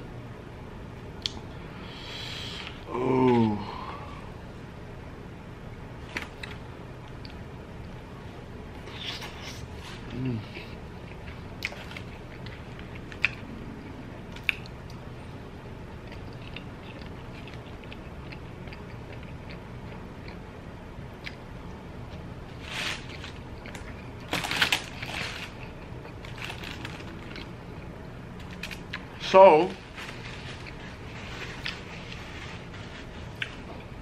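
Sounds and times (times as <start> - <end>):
food crunching: 10.5 - 15.1, 15.8 - 20.5, 22.1 - 29.2, 29.8 - 33.9
chewing with wet mouth clicks: 11.0 - 15.0, 15.9 - 20.4, 21.1 - 21.4, 33.3 - 33.6.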